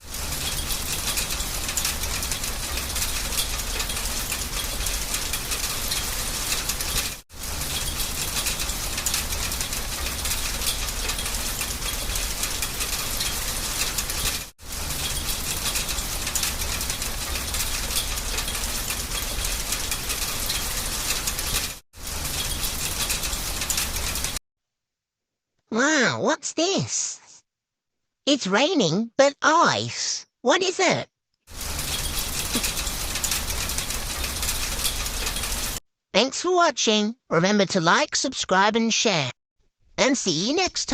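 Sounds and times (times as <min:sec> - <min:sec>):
hail clattering on hard surfaces: 0:00.0 - 0:24.4, 0:31.5 - 0:35.8.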